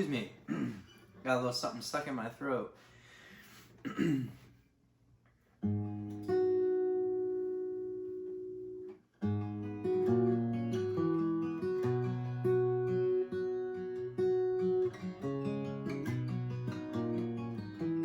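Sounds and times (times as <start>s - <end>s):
acoustic guitar strumming: 5.6s - 18.0s.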